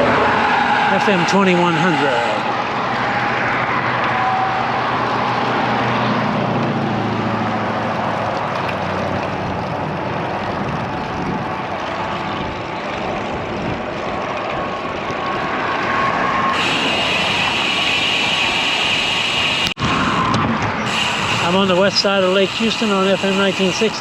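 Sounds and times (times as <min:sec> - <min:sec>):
passing vehicle engine hum: 0:00.0 - 0:18.0
wind noise on microphone: 0:09.0 - 0:17.8, 0:19.7 - 0:21.9.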